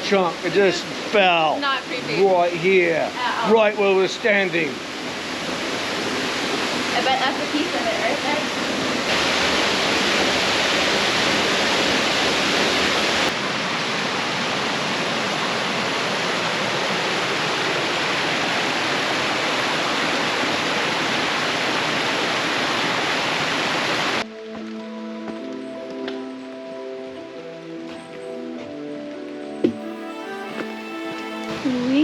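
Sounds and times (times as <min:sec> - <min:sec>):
waterfall rushing: 0:00.0 - 0:24.2, 0:29.7 - 0:32.0
soft background music: 0:24.2 - 0:32.0.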